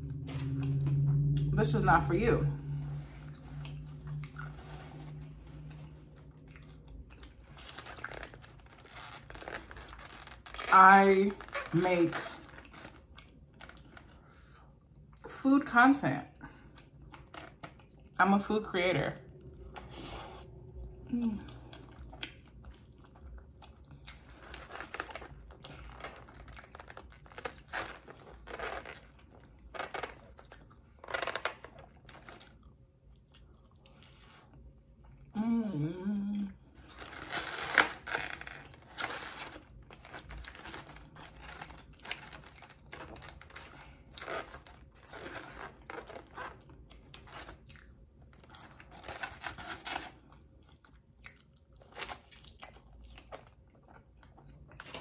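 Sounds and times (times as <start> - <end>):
food crunching: 3.0 - 15.2, 19.2 - 35.3, 36.6 - 55.0
chewing and lip-smacking: 3.2 - 9.4, 16.6 - 18.2, 19.2 - 35.3, 50.2 - 55.0
person humming: 35.4 - 36.6.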